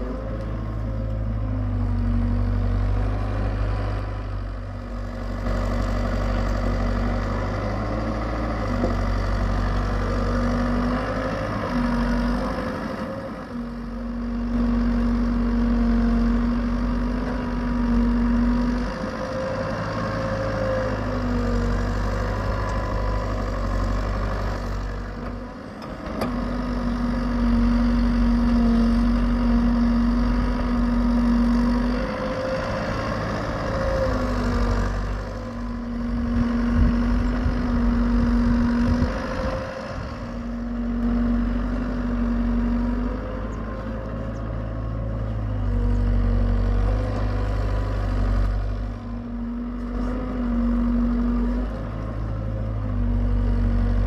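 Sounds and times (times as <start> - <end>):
excavator engine humming: 0.0 - 54.0
excavator whining tone: 0.0 - 54.0.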